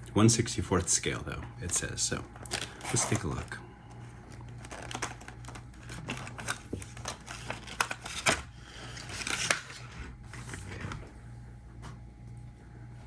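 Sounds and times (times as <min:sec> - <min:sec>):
packaging crinkling: 0:01.6 - 0:03.6, 0:04.3 - 0:09.9.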